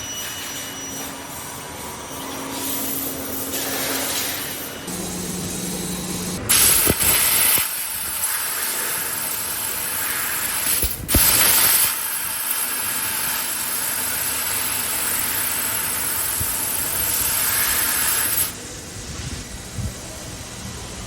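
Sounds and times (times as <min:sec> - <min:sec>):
air hissing through laser cutting head: 0:03.5 - 0:18.6.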